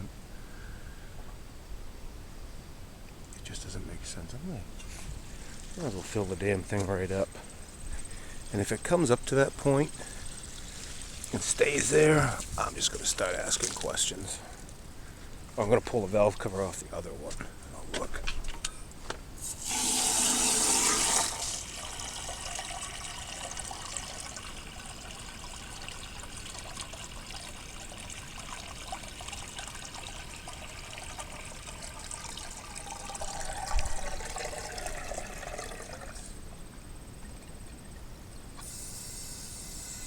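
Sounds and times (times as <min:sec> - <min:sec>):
water from hose pouring: 0:08.6 - 0:14.3, 0:19.4 - 0:36.4.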